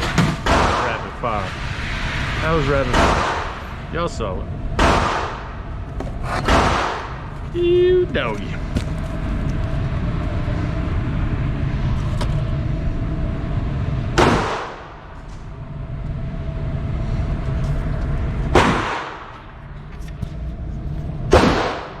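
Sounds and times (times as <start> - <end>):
low background rumble: 0.0 - 22.0
loud gunshots: 0.4 - 1.0, 2.9 - 3.6, 4.8 - 5.5, 6.4 - 7.2, 14.2 - 14.9, 18.5 - 19.3, 21.3 - 22.0.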